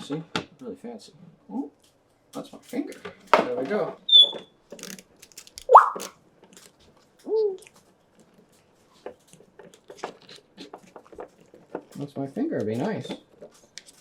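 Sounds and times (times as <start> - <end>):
faint clicks and taps: 4.7 - 14.0
parrot rising whistle: 5.7 - 6.1.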